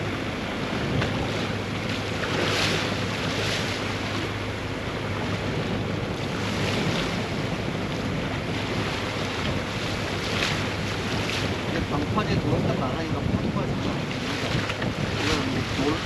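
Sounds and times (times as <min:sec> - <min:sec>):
low engine hum: 0:00.0 - 0:16.0
water splashing along a hull: 0:00.0 - 0:16.0
wind buffeting microphone: 0:00.0 - 0:16.0.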